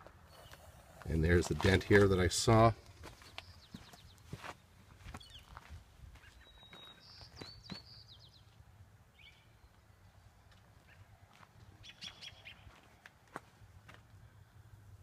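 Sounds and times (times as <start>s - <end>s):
faint footsteps on gravel: 0.0s - 7.9s, 9.3s - 11.8s, 12.6s - 14.2s
small bird chirping: 6.2s - 8.6s, 11.8s - 12.7s.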